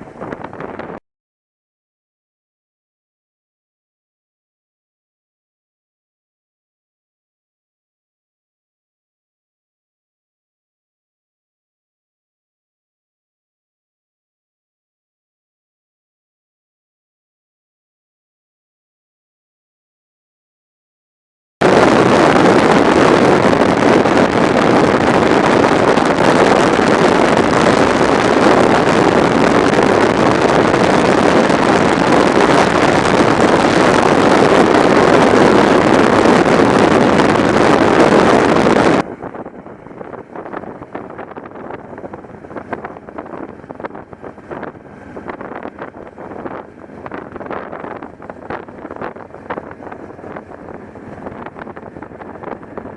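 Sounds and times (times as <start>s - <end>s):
wind noise on microphone: 0.0s - 1.0s, 21.6s - 52.9s.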